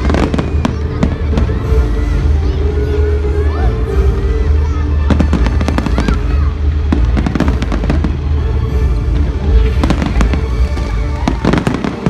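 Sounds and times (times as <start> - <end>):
fireworks crackling and popping: 0.0 - 1.7, 5.0 - 12.0
deep low rumble: 0.0 - 12.0
music playing: 0.0 - 12.0.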